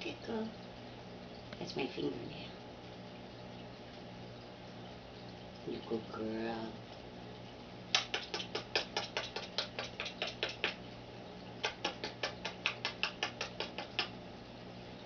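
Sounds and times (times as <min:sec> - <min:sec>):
parrot beak clicking on fingernail: 0:07.9 - 0:10.8, 0:11.6 - 0:14.2.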